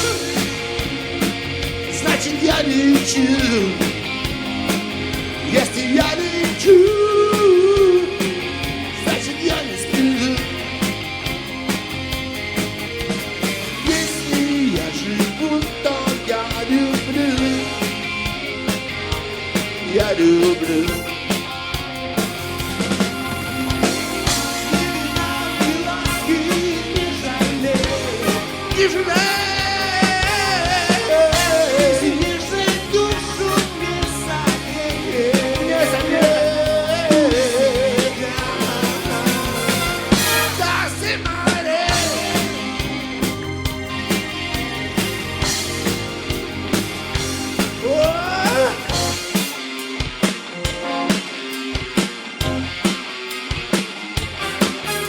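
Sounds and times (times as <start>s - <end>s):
drum kit beat: 0.0s - 55.0s
live rock band playing: 0.0s - 55.0s
gliding melodic lead line: 17.4s - 41.3s, 41.9s - 49.4s.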